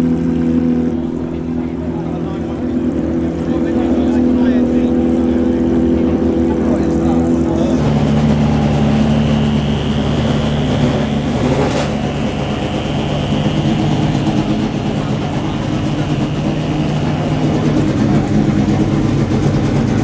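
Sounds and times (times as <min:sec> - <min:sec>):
car engine idling: 0:00.0 - 0:20.0
thin high-pitched tone: 0:07.7 - 0:19.3.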